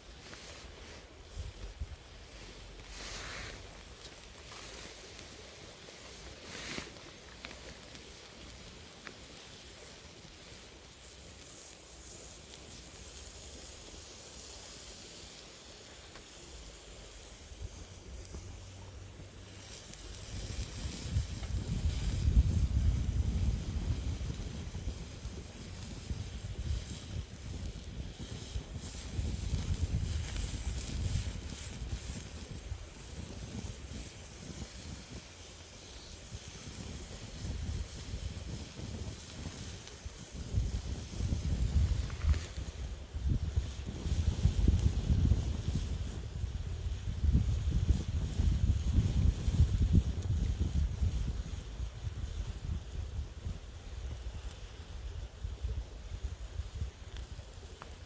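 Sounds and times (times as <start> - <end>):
steady hiss with faint crackles: 0.0 - 58.0
wind buffeting microphone: 17.5 - 57.4.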